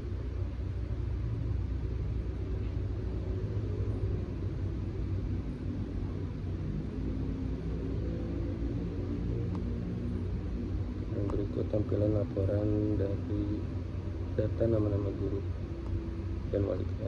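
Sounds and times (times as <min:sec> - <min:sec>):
faint hum: 0:00.0 - 0:17.0
low rumble: 0:00.0 - 0:17.0.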